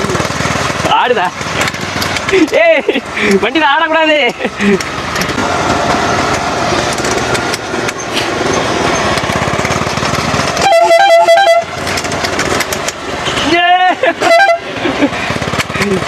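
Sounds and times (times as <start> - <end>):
small engine running: 0.0 - 16.0
vehicle horn honking: 10.6 - 11.8, 14.2 - 14.8.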